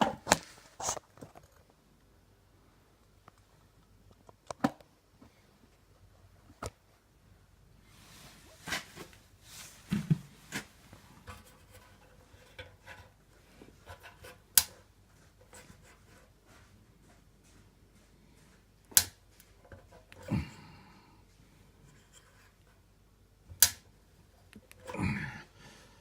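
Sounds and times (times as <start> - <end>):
tools clicking and tapping: 13.8 - 16.0, 18.8 - 20.3
sharp click: 18.9 - 19.2, 23.6 - 23.8.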